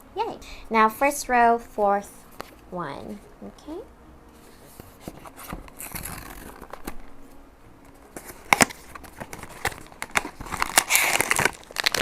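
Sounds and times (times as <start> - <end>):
packaging crinkling and rustling: 4.8 - 7.2, 7.9 - 12.0.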